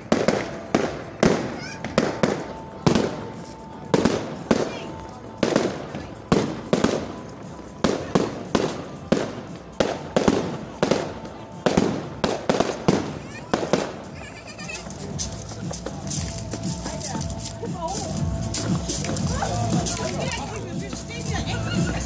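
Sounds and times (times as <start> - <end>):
fireworks bangs with echo: 0.0 - 14.2.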